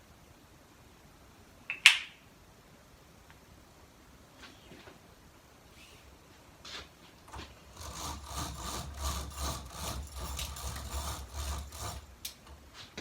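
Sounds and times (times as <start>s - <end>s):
window blinds rattling: 7.3s - 12.8s.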